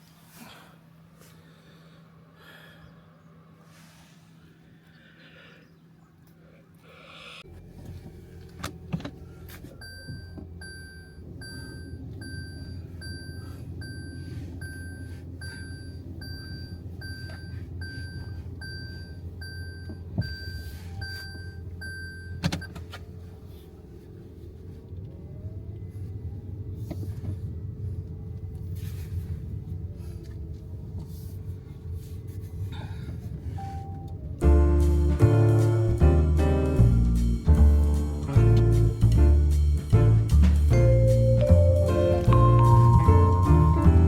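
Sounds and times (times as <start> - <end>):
car idling: 26.9 - 44.0
electronic warning chime beeping: 40.8 - 44.0.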